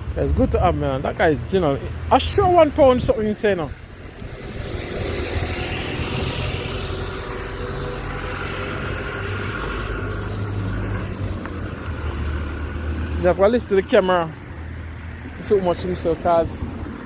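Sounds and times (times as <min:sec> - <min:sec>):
car driving past: 0:03.9 - 0:13.3.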